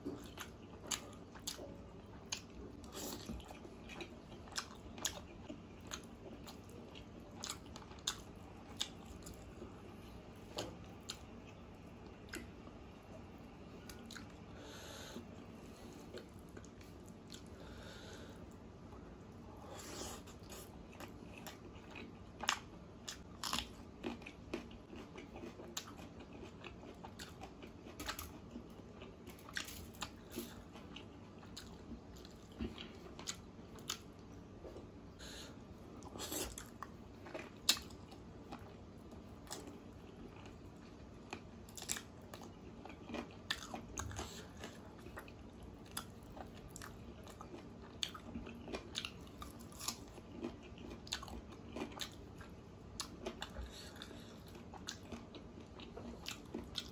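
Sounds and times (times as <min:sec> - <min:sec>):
person chewing food: 0:00.0 - 0:18.5, 0:19.5 - 0:56.9.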